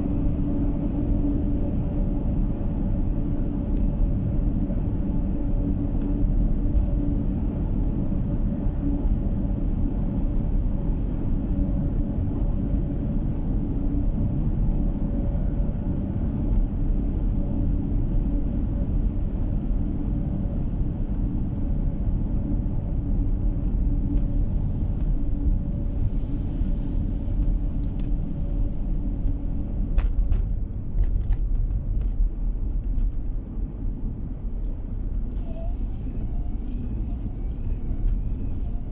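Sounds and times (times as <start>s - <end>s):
car road noise rumble: 0.0s - 38.9s.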